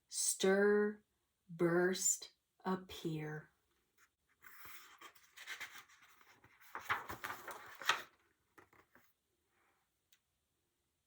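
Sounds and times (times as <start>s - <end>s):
book pages rustling and turning: 4.0s - 9.2s.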